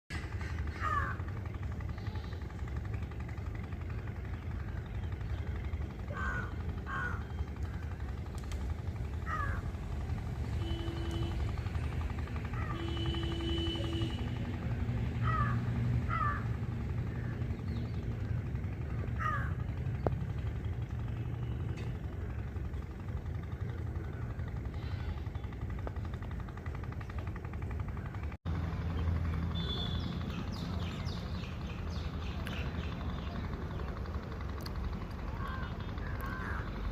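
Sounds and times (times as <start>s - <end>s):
faint held hum: 0.1s - 36.9s
steady low rumble: 0.1s - 36.9s
birds giving harsh falling calls: 0.2s - 2.9s, 4.1s - 9.8s, 15.2s - 19.9s, 35.2s - 36.9s.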